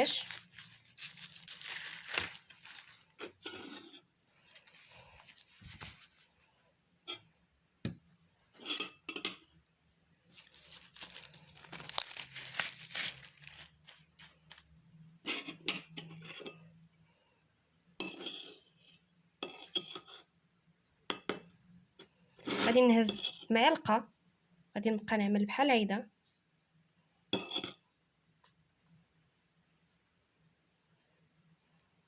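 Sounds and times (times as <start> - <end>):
spoon scraping a bowl: 3.0 - 4.1, 8.5 - 9.5, 15.2 - 16.7, 18.0 - 20.3, 22.4 - 23.5, 27.4 - 27.8.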